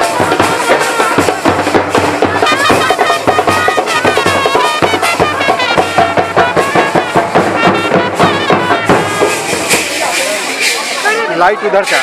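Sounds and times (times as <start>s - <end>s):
quick drum beat: 0.0s - 11.2s
wind instrument melody: 0.0s - 12.0s.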